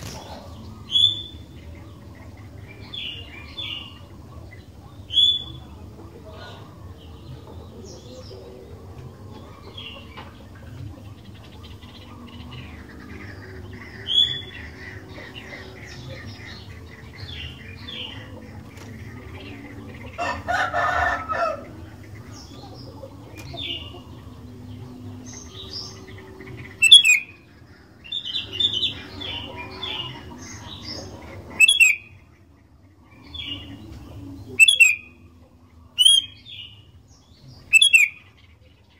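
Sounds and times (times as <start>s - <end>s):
bulbuls chirping: 0.0s - 38.9s
lower bird call: 25.2s - 30.8s, 31.5s - 32.3s, 34.5s - 35.4s, 36.0s - 36.7s, 37.6s - 38.4s.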